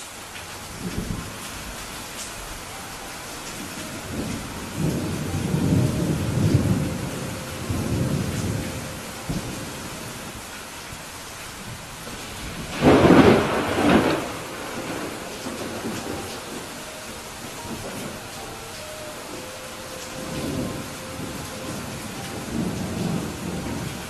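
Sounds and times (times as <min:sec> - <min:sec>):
steady rain: 0:00.0 - 0:24.0
rolling thunder: 0:03.5 - 0:10.4, 0:11.6 - 0:24.0
thunder clap: 0:12.0 - 0:24.0.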